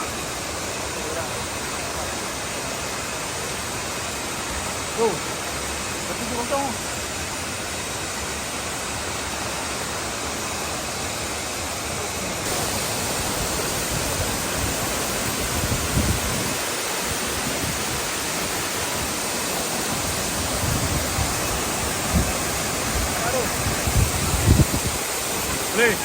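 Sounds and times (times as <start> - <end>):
wind noise on microphone: 13.1 - 19.2, 20.1 - 25.8.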